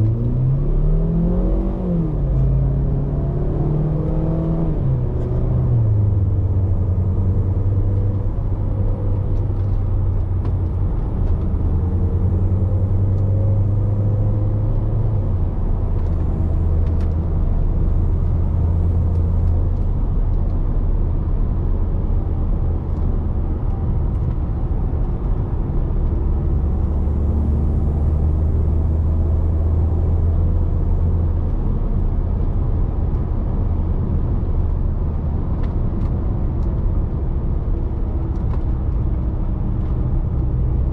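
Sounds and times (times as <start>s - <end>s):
car engine drone from inside cabin: 0.0s - 40.9s.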